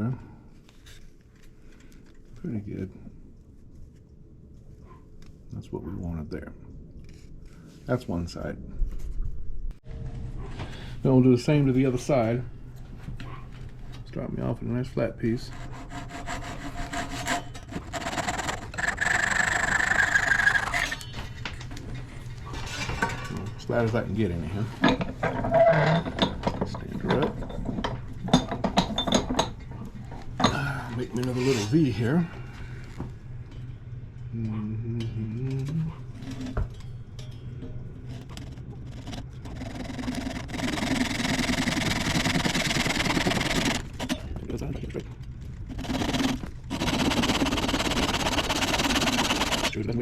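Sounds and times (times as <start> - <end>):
tool scraping wooden dowel: 15.2 - 21.1, 38.1 - 44.2, 45.7 - 49.7.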